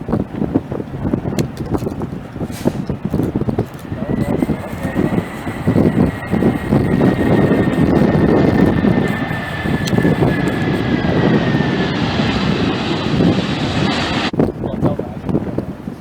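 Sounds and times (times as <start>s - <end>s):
jet airliner engines passing: 2.9s - 14.4s.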